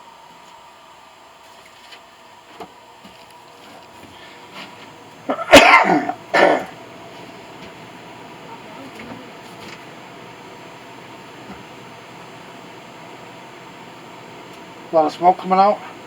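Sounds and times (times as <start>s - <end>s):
person coughing loudly: 5.3s - 6.8s.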